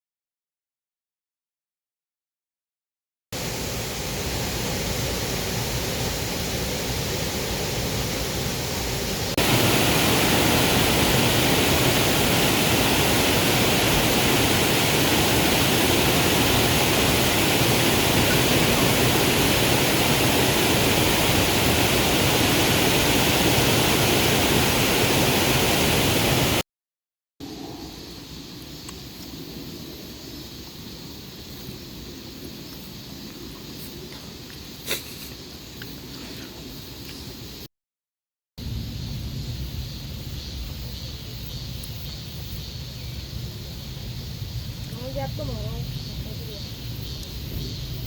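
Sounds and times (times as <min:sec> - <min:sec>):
stream water rushing: 0:03.4 - 0:26.6.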